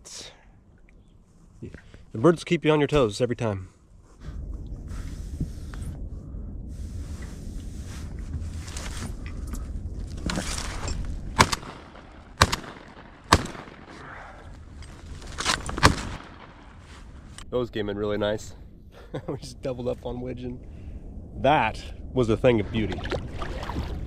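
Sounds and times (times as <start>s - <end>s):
low rumbling noise: 0.0s - 24.0s
shotgun shots: 11.3s - 14.4s, 15.4s - 16.8s.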